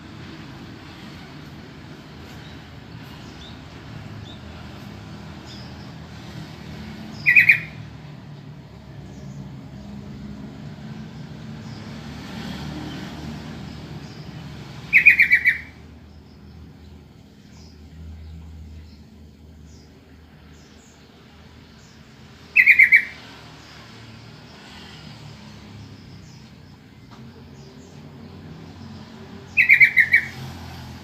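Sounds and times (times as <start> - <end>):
bird chattering calls: 7.1 - 7.8, 14.9 - 15.8, 22.5 - 23.2, 29.5 - 30.4.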